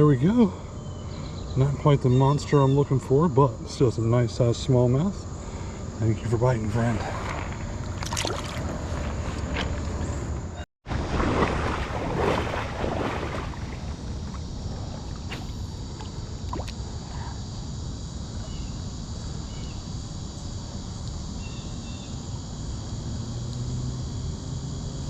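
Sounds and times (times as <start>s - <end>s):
faint chirps: 0.3s - 3.1s
water splashing and sloshing: 6.7s - 10.1s, 10.8s - 16.9s
creek water rushing: 10.9s - 14.2s.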